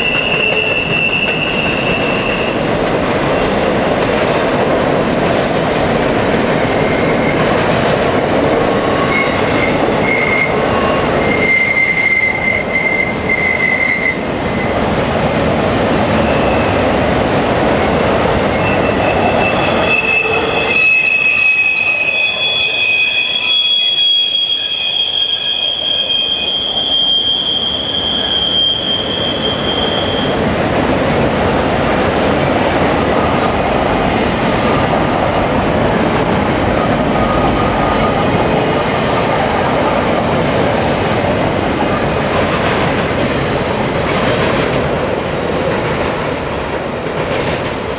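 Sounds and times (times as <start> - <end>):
wheels squealing on rails: 0.0 - 4.5, 6.4 - 14.9, 16.0 - 17.0, 17.9 - 30.5
freight train rolling past: 0.0 - 47.9.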